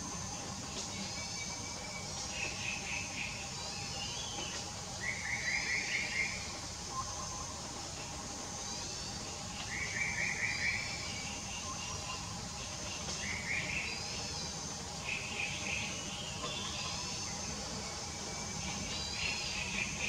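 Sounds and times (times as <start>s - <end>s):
steady low background hum: 0.0s - 20.0s.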